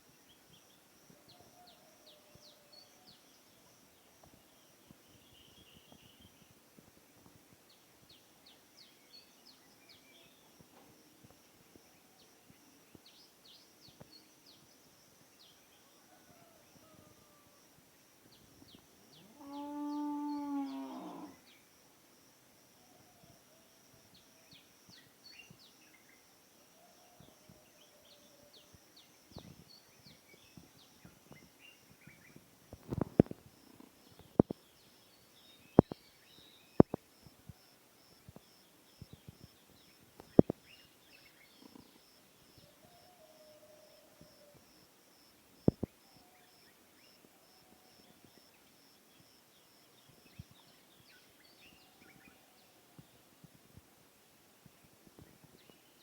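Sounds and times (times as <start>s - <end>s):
small birds chirping: 28.2s - 37.6s, 38.2s - 42.8s.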